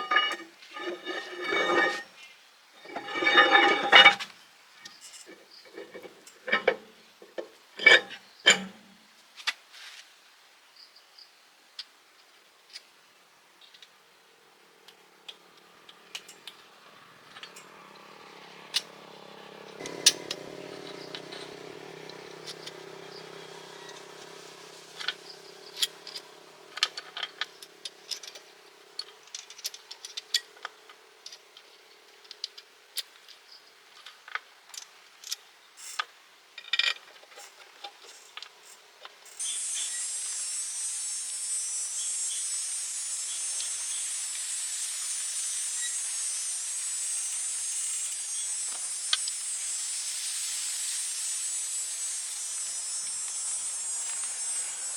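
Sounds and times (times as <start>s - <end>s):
high hiss: 19.8s - 29.0s, 39.3s - 54.9s.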